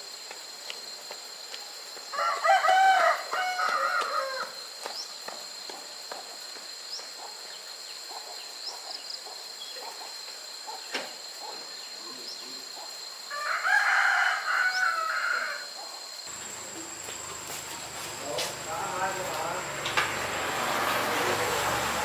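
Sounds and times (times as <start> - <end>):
rooster crowing: 2.1 - 4.6, 13.3 - 22.0.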